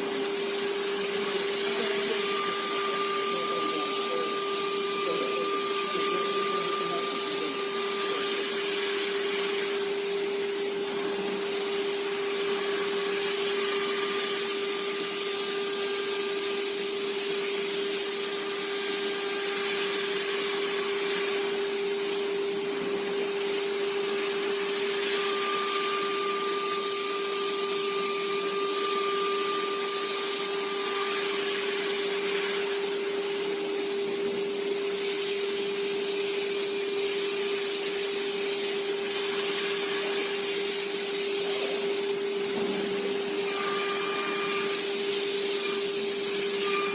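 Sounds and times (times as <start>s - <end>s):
axis motors high tones: 0.0s - 15.6s, 23.3s - 33.6s, 39.1s - 46.9s
cnc spindle motor whine: 0.0s - 46.9s.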